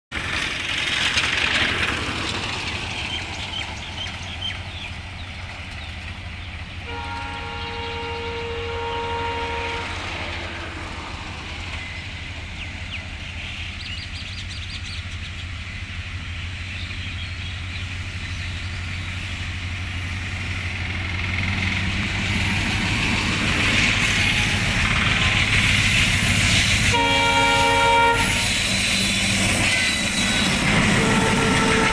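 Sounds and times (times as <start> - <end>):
train rumbling: 0.1 - 31.9
train horn chord: 6.8 - 10.7, 26.9 - 28.6, 30.4 - 31.9.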